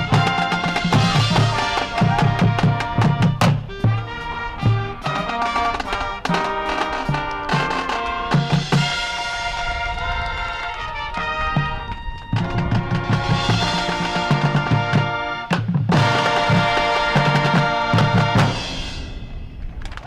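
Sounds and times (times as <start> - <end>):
marching band playing: 0.0 - 19.4.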